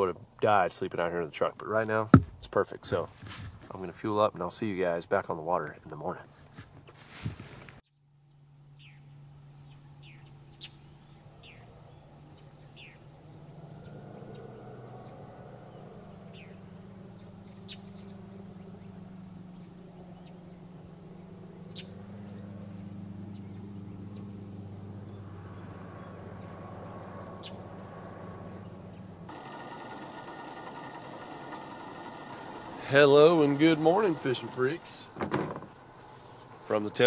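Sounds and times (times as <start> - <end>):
birds chirping: 8.2 - 37.0
steady low hum: 16.0 - 36.7.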